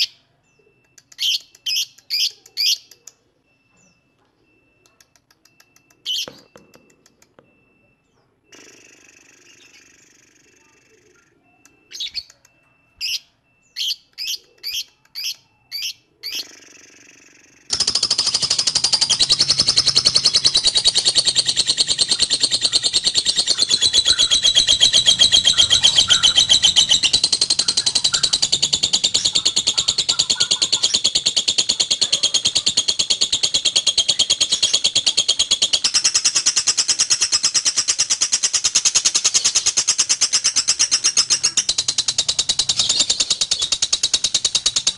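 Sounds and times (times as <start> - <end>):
bird chattering trill: 0.0 - 44.9
lovebird sharp calls: 5.4 - 7.7, 13.0 - 44.9.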